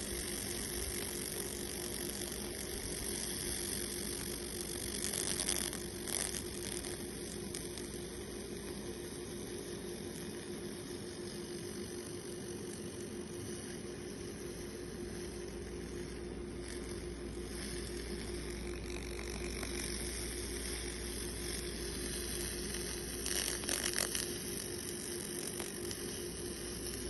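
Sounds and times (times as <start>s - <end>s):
machine hum and hiss: 0.0s - 27.0s.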